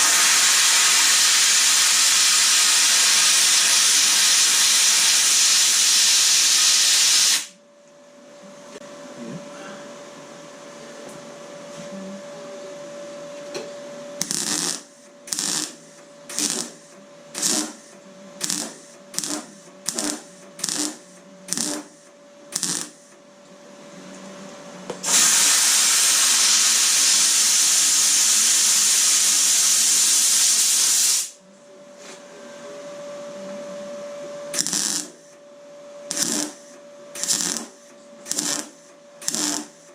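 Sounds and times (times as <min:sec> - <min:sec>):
welder hissing: 0:00.0 - 0:07.6, 0:14.2 - 0:23.1, 0:25.0 - 0:31.4, 0:34.6 - 0:35.4, 0:36.1 - 0:39.9.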